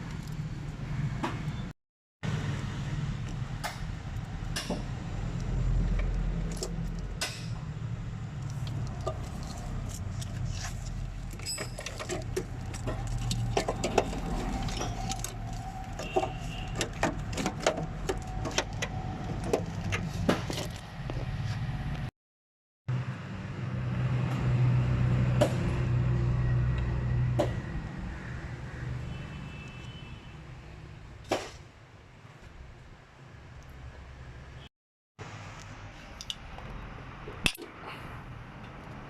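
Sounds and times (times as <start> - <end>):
metal tools clinking: 11.2 - 17.6.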